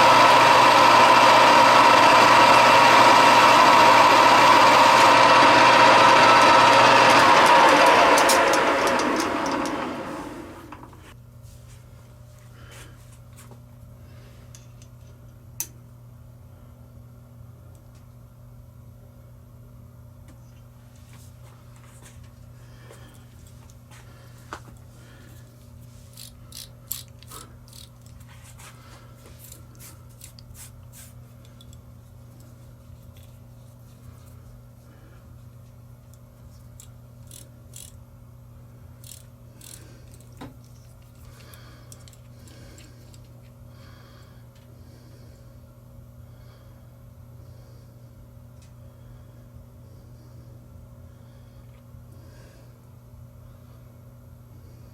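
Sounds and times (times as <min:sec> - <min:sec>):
machine tool winding down: 0:00.0 - 0:11.0, 0:39.0 - 0:40.4
steady low hum: 0:00.0 - 0:54.9.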